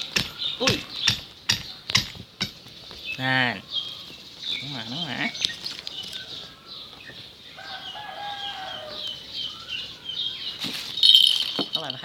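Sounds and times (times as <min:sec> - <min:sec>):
birds chirping: 0:00.0 - 0:12.0
chicken calling: 0:03.4 - 0:11.2.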